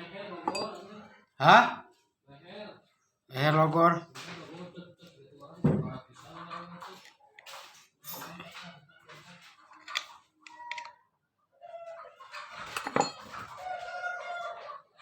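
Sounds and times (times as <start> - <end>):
knocks: 5.6 - 6.0.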